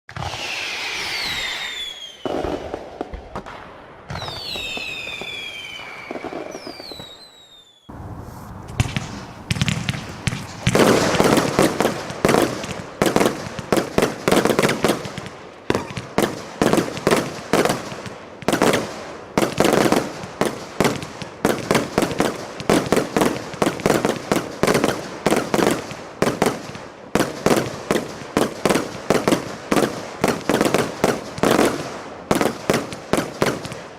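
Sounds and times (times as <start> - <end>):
falling firework whistles: 0.1 - 2.8, 4.1 - 11.6
firework shots and bursts: 0.1 - 33.9.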